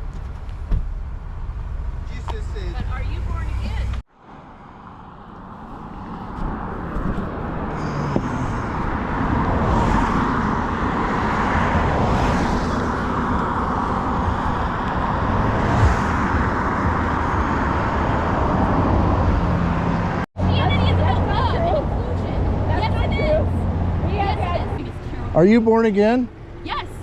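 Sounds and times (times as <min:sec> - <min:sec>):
cars going by: 0:00.0 - 0:27.0.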